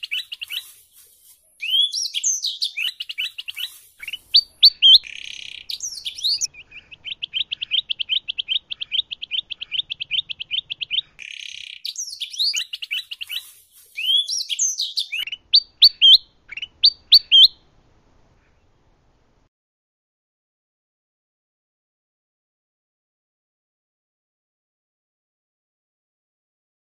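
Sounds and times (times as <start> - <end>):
songbirds singing: 0.0 - 17.7.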